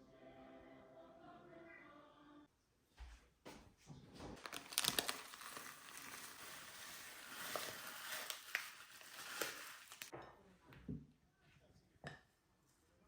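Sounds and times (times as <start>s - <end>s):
material crinkling and crumpling: 4.2s - 10.1s.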